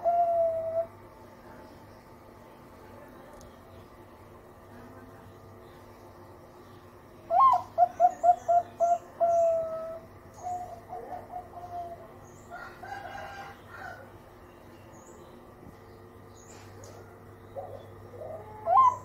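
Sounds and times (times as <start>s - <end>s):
dove cooing: 0.0s - 1.0s, 7.3s - 14.0s, 16.6s - 19.0s
small birds chirping: 0.0s - 19.0s.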